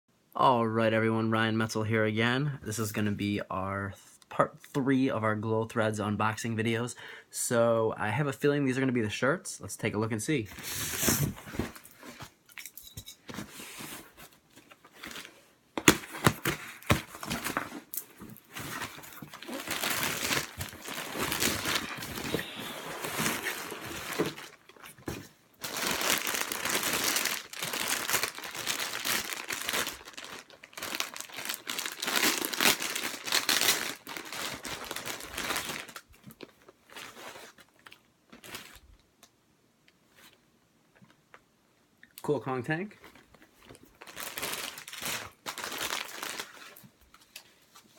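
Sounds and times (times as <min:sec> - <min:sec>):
packaging crinkling and tearing: 0:14.6 - 0:39.0, 0:43.0 - 0:47.9.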